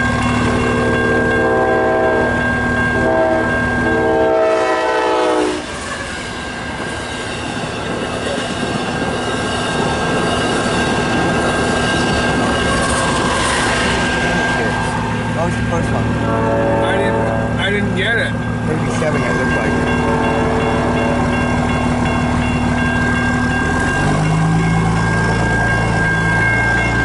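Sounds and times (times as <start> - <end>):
train rushing by: 0.0 - 27.0
train horn blasts: 0.7 - 5.8, 16.2 - 17.7, 19.7 - 21.4.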